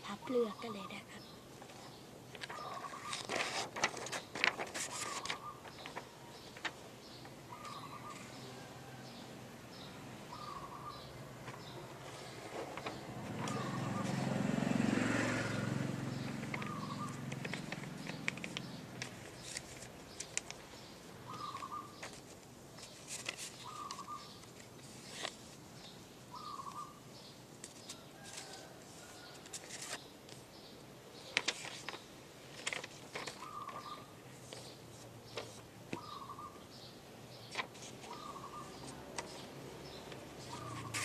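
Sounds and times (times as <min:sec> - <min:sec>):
bird chirping: 0:00.0 - 0:03.4, 0:04.1 - 0:14.4, 0:15.4 - 0:22.2, 0:22.8 - 0:32.2, 0:33.1 - 0:41.0
paper folding and rustling: 0:01.6 - 0:06.8, 0:11.4 - 0:14.2, 0:16.3 - 0:20.7, 0:21.3 - 0:25.6, 0:27.6 - 0:30.4, 0:31.3 - 0:35.7, 0:37.5 - 0:39.5, 0:40.1 - 0:41.0.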